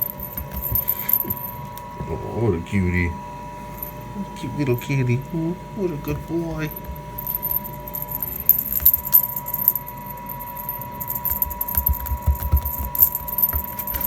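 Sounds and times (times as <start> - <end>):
cat toy jingling and clicking: 0.0 - 1.5, 6.7 - 14.0
steady machine hum: 0.0 - 14.0.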